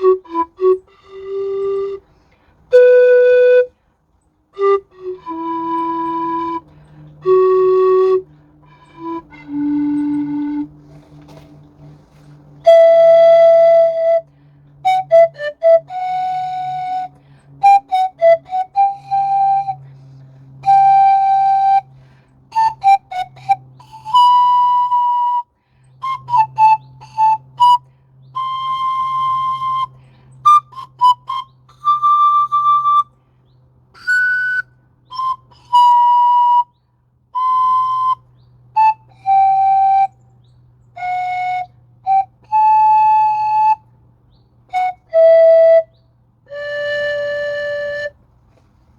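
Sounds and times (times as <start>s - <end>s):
low hum: 0.0s - 35.7s
pan flute tune: 0.0s - 48.6s.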